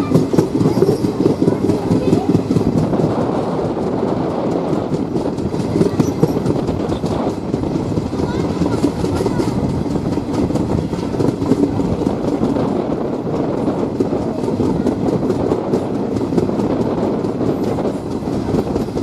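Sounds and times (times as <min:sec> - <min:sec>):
train wheels clattering on rails: 0:00.0 - 0:19.0.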